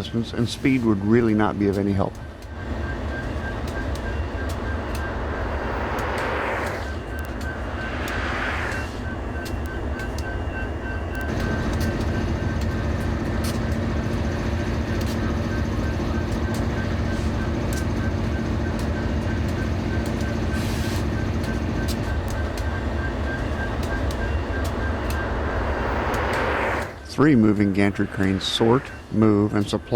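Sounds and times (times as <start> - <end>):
engine drone: 2.1 - 29.9
high-pitched tone: 2.5 - 12.5, 21.4 - 29.9.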